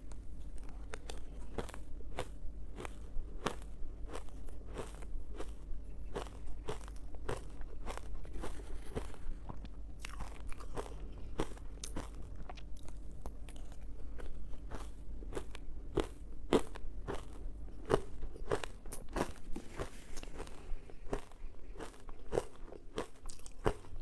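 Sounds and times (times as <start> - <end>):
ice being chewed: 0.4 - 24.0.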